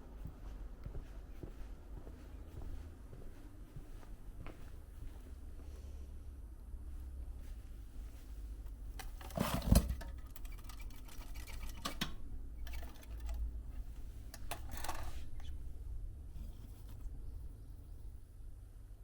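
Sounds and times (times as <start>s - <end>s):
low steady rumble: 0.0s - 10.3s, 12.2s - 19.0s
small objects clattering and rustling: 9.0s - 15.6s.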